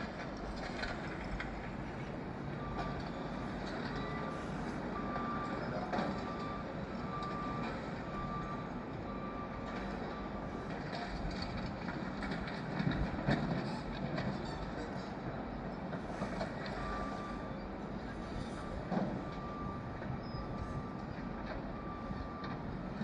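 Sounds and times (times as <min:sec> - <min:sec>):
diesel construction machinery running: 0:00.0 - 0:23.0
reversing alarm beeps: 0:00.6 - 0:11.6, 0:16.2 - 0:23.0.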